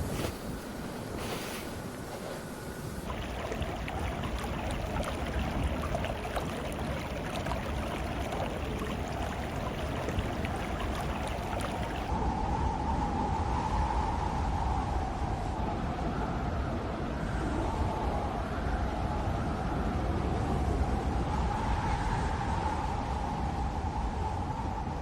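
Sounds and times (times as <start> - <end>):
windy hiss: 0.0 - 16.2.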